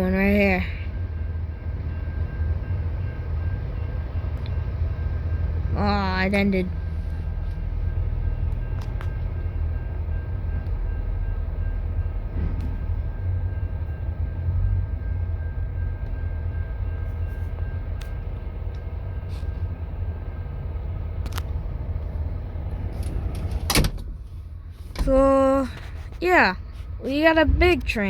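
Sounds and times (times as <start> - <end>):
freight train rumbling: 0.0 - 28.0.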